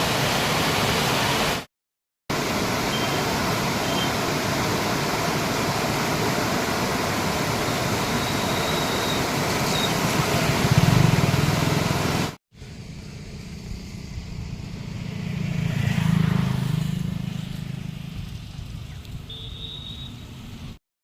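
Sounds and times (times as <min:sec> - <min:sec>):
steady rushing noise: 0:02.3 - 0:18.9
vehicle engine passing: 0:10.4 - 0:12.3, 0:13.3 - 0:18.6.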